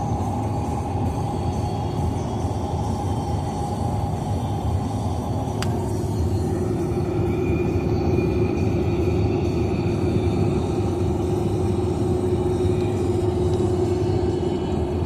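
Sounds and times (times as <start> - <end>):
car road and engine noise: 0.0 - 15.0
hum: 0.0 - 15.0
click: 5.6 - 5.8.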